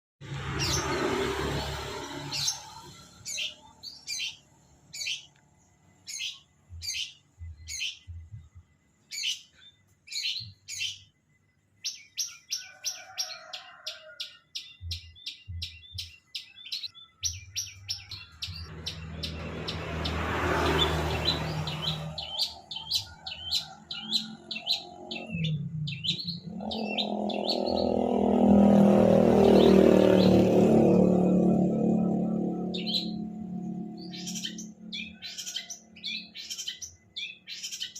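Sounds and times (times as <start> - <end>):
bird singing sharp high notes: 14.9 - 37.9
bird chattering: 21.5 - 28.1.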